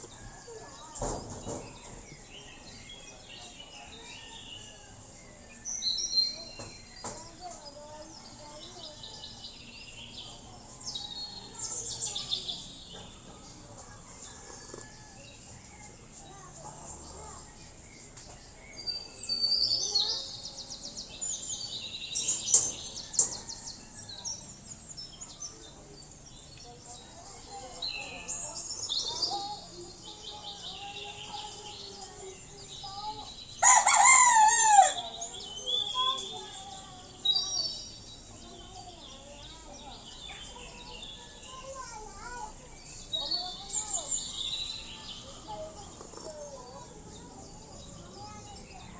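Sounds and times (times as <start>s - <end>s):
small birds chirping: 0.0s - 48.9s
rooster crowing: 33.6s - 35.1s.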